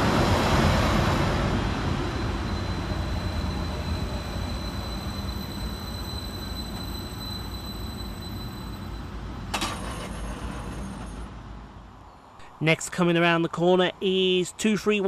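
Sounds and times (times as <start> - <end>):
train slowing to a stop: 0.0 - 11.6.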